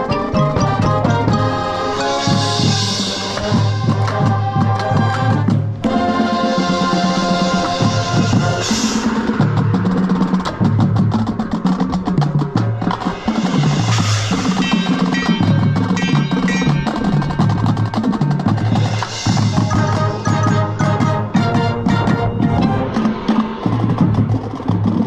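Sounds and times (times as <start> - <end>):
ringing mallet percussion: 0.0 - 4.2, 14.3 - 21.0
marching band drums: 0.0 - 25.0.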